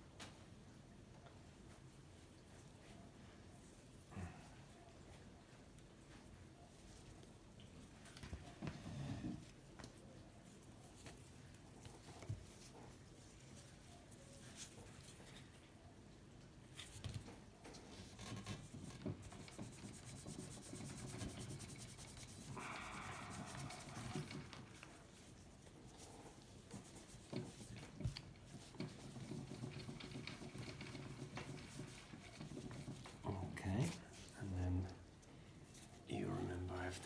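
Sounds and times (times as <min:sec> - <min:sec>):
cloth rubbing on metal: 0:18.0 - 0:34.6.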